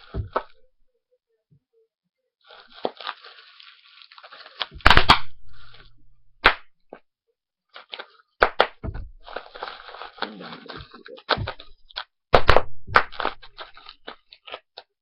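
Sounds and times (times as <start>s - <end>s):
bubble wrap pops: 0.0s - 0.6s, 2.5s - 7.0s, 7.8s - 14.9s
bubble wrap crinkling: 2.4s - 6.7s, 7.7s - 15.0s.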